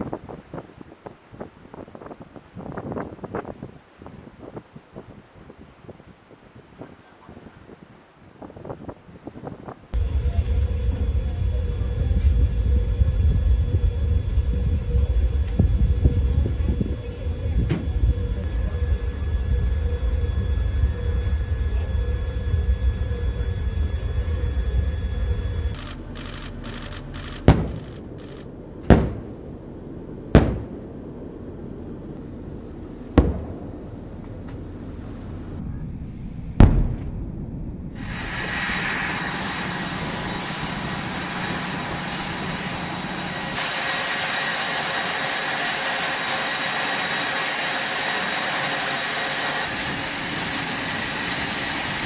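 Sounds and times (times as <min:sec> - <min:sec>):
loud steady rushing noise: 0:09.9 - 0:52.0
low mechanical rumble: 0:09.9 - 0:52.0
thin high whine: 0:10.0 - 0:28.5, 0:37.9 - 0:52.0
sharp bangs: 0:10.0 - 0:29.6, 0:33.0 - 0:34.9.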